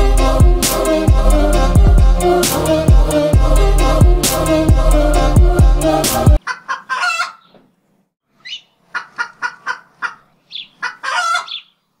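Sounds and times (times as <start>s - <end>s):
bird clucking: 6.4s - 7.6s, 8.4s - 11.8s.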